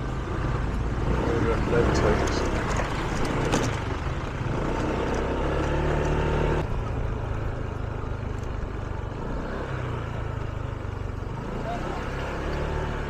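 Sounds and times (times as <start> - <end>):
motor scooter engine hum: 0.0 - 13.0.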